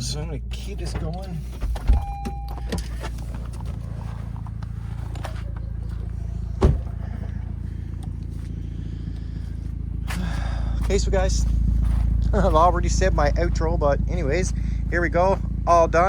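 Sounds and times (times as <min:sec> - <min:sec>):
car engine running: 0:00.0 - 0:16.0
short beep: 0:02.0 - 0:03.0
thump: 0:06.6 - 0:07.0.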